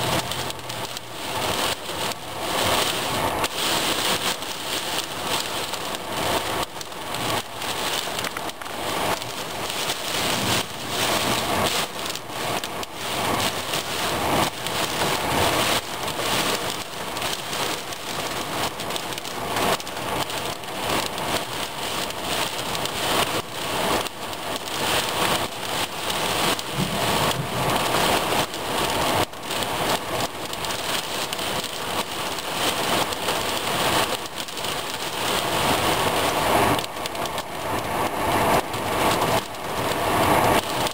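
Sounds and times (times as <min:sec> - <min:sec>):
heavy rain on hard surfaces: 0:00.0 - 0:40.9.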